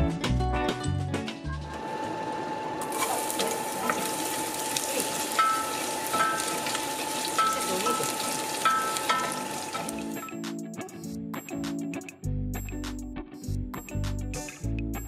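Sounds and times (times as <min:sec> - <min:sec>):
food sizzling in hot oil: 0:02.8 - 0:10.4
spoon knocking against pot: 0:05.4 - 0:06.6, 0:07.4 - 0:09.9.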